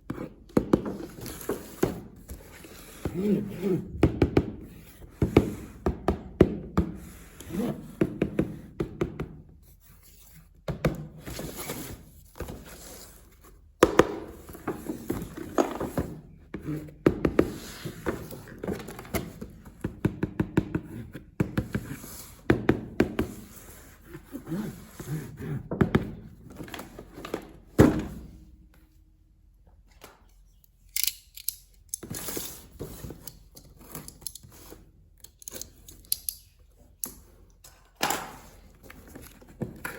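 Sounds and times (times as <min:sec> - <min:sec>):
plastic toy parts clicking: 0:30.6 - 0:32.1, 0:35.2 - 0:36.5.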